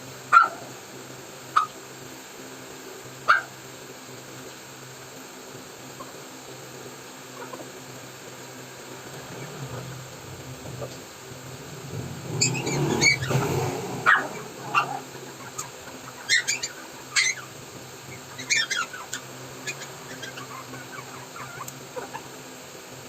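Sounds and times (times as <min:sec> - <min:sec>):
steady low hum: 0:00.0 - 0:23.0
rush of noise: 0:08.9 - 0:16.2
puppy whimpering in high squeaks: 0:16.2 - 0:17.4.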